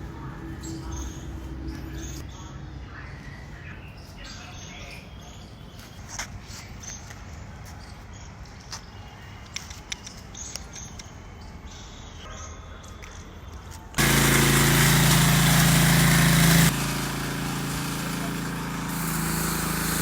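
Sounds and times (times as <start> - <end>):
car washing machine running: 14.0 - 20.0.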